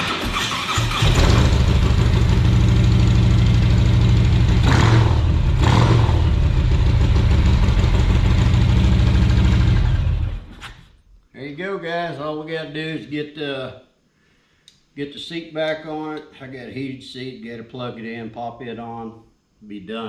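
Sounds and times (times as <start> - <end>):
motorcycle engine idling: 1.1 - 10.4.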